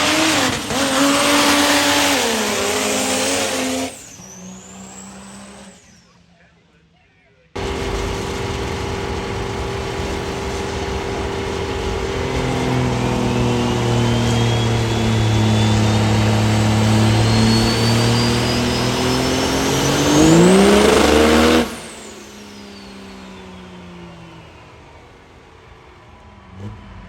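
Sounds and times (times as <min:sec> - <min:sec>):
diesel truck engine at full throttle: 0:00.0 - 0:05.9, 0:07.6 - 0:27.0
turbo whistle: 0:09.8 - 0:24.3.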